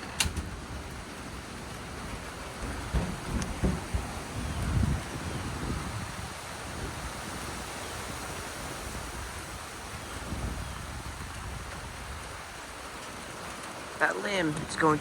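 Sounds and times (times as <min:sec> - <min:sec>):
low thunder rumble: 0:00.0 - 0:07.5
steady rain: 0:00.0 - 0:15.0
wind: 0:00.0 - 0:15.0.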